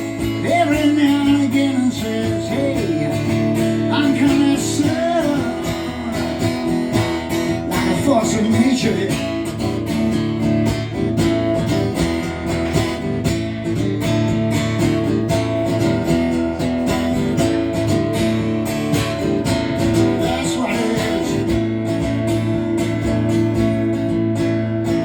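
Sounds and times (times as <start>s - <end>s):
strummed acoustic guitar: 0.0s - 25.0s.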